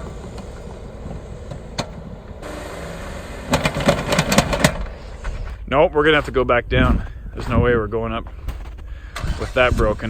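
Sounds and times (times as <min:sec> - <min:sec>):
car engine idling: 0:00.0 - 0:05.6.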